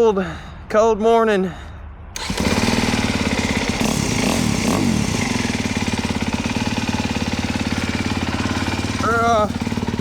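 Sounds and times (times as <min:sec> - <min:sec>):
dirt bike engine idling: 0:02.2 - 0:10.0.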